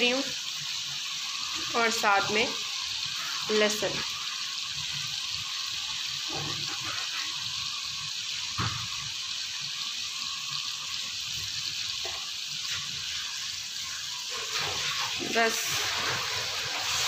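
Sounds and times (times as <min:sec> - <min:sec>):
chicken sizzling in pan: 0:00.0 - 0:17.0.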